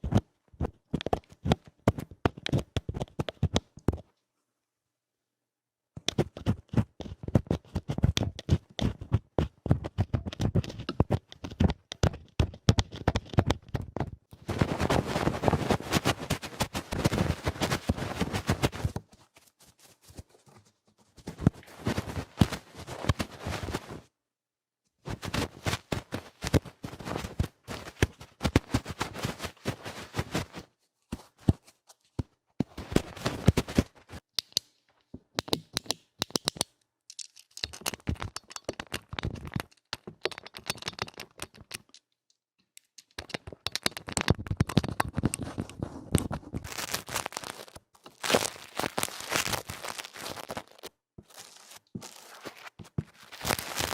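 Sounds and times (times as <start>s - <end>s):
scratching and scraping on microphone: 6.0s - 24.1s, 25.1s - 34.2s, 43.2s - 53.9s.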